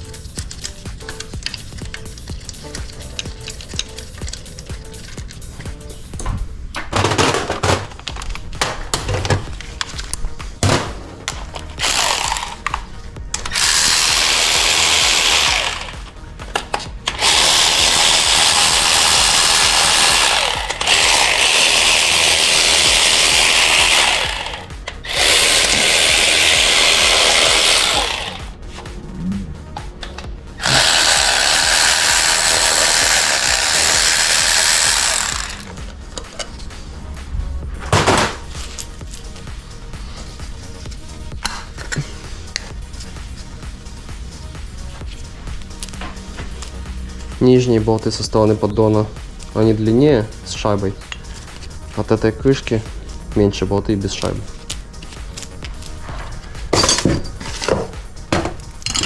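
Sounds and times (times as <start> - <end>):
tools and parts clattering: 0.0 - 28.5, 33.2 - 36.8, 37.8 - 43.1, 45.0 - 47.4, 48.0 - 52.8, 53.5 - 59.0
cordless power tool running: 11.8 - 12.8, 13.4 - 16.2, 17.1 - 28.5, 30.6 - 35.8.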